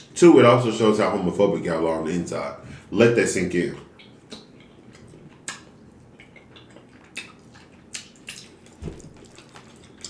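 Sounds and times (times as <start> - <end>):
quiet chewing: 3.9 - 10.0
wet mouth clicks and smacks: 3.9 - 10.0.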